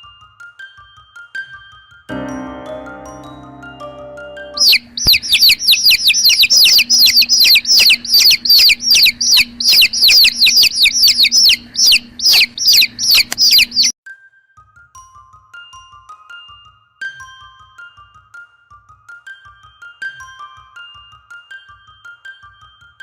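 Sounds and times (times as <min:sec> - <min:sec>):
soft mallet instrument music: 0:02.1 - 0:05.7
baby birds cheeping: 0:04.6 - 0:13.9.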